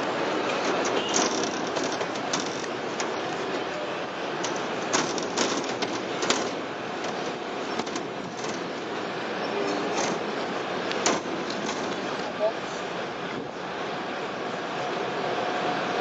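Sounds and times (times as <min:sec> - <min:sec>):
wheels clicking on rails: 0:00.0 - 0:12.7
rail car rolling on track: 0:00.0 - 0:16.0.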